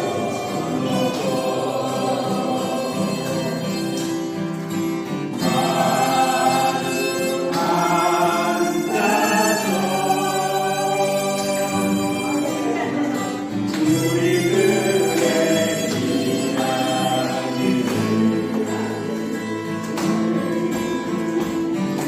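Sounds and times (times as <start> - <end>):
person singing: 0.0 - 4.1, 5.4 - 21.2
musical accompaniment: 0.0 - 22.0.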